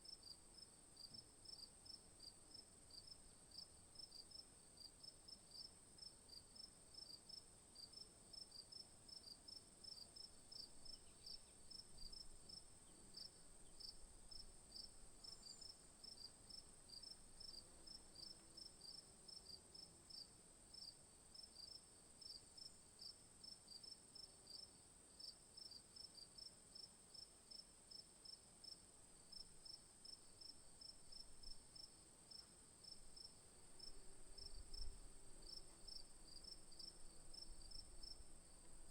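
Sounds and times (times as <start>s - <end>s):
crickets chirping: 6.6s - 24.6s, 27.5s - 38.9s.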